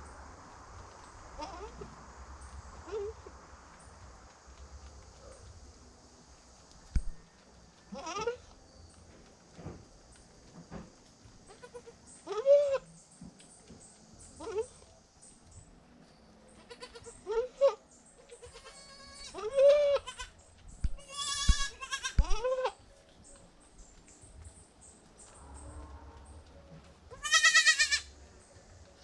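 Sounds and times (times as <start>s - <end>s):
goat kids bleating: 1.4s - 1.8s, 7.9s - 8.6s, 11.5s - 12.9s, 16.6s - 20.3s, 21.0s - 22.8s, 27.1s - 28.2s.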